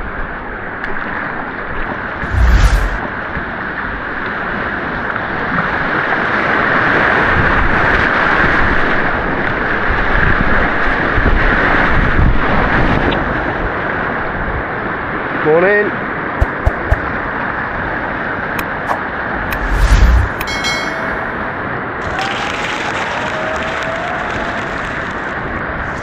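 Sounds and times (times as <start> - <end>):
low thump: 16.4 - 17.0.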